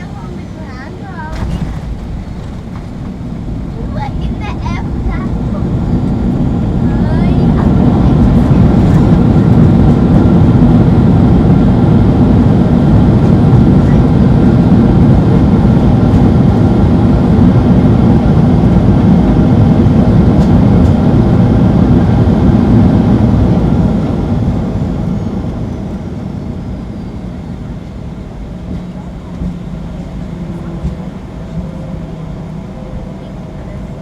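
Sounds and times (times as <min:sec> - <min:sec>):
cabin hum: 0:00.0 - 0:11.2
jet cabin rumble: 0:00.0 - 0:34.0.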